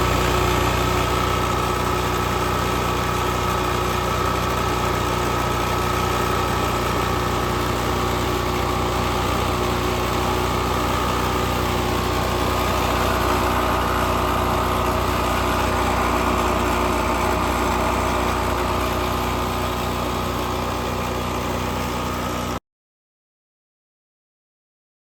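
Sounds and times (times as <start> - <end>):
portable generator engine running: 0.0 - 22.6.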